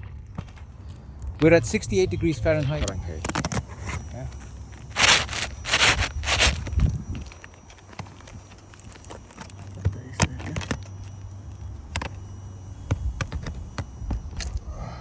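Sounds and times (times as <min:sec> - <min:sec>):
footsteps on shingles: 0:03.9 - 0:09.9.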